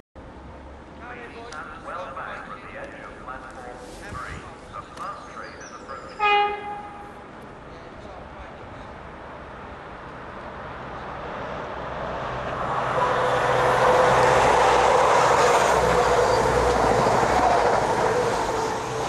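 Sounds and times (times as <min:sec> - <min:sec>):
train hum: 0:00.2 - 0:19.0
train wheels rushing on rail: 0:11.1 - 0:19.0.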